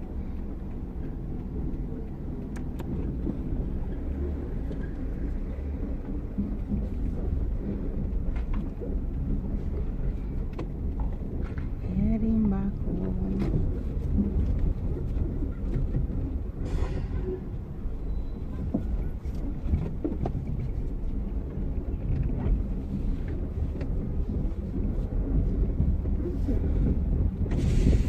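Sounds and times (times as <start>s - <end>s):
road and engine rumble in car: 0.0s - 28.0s
brief hiss: 27.5s - 28.0s.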